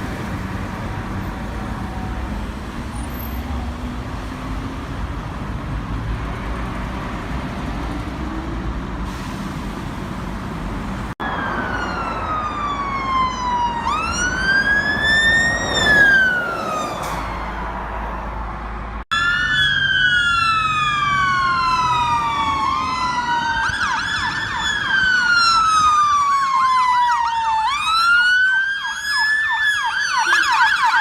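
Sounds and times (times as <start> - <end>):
rumbling road vehicle noise: 0.0 - 28.7
wailing siren: 11.2 - 31.0.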